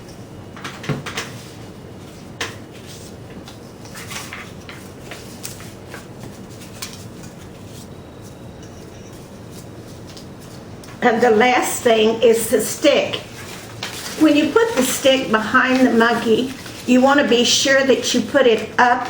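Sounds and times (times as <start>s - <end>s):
steady background hiss: 0.0s - 19.0s
paper materials clicking and knocking: 3.3s - 11.0s.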